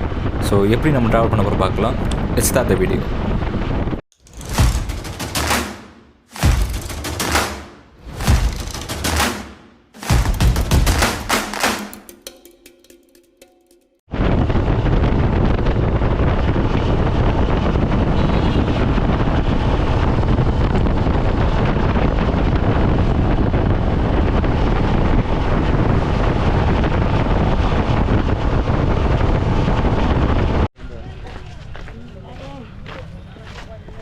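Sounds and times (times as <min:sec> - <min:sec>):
wind buffeting microphone: 0:14.1 - 0:34.0.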